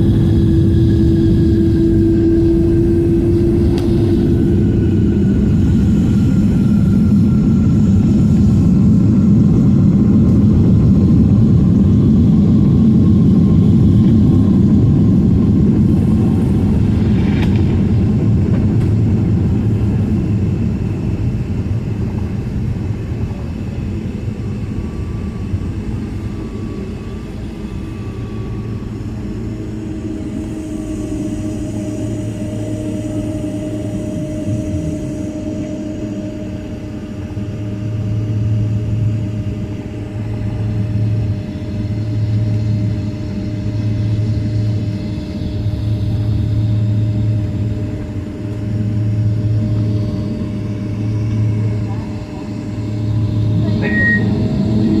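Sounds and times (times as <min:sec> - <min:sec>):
jet engine rumble inside cabin: 0:00.0 - 0:55.0.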